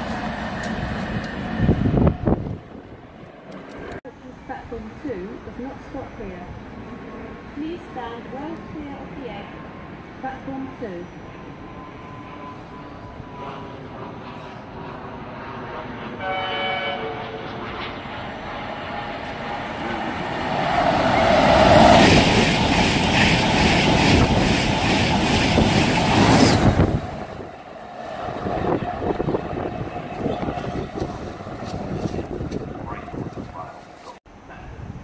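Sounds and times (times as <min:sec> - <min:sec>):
train passing roar: 0:00.0 - 0:34.6
train horn blast: 0:16.2 - 0:17.6.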